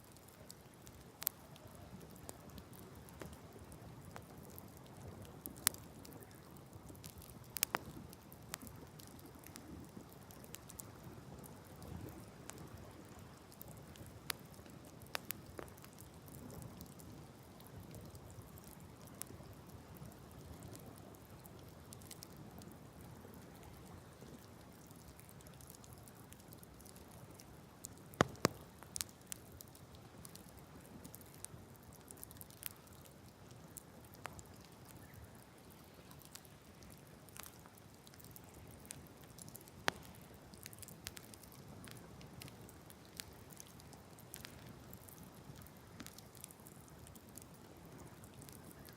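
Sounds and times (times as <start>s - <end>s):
campfire crackling and popping: 0.0s - 48.9s
low steady fire rush: 26.6s - 48.9s.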